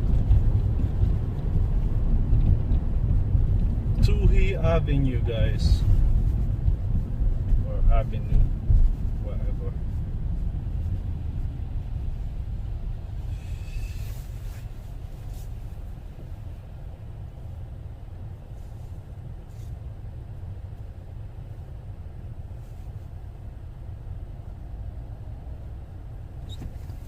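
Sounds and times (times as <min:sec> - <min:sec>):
car engine and tyres rumbling: 0:00.0 - 0:27.0
brief hiss: 0:13.3 - 0:15.5.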